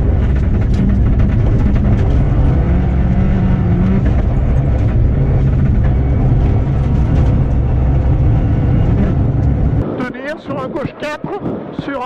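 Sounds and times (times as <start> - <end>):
car engine running hard: 0.0 - 10.4
tyre and road noise on snow: 0.0 - 12.0.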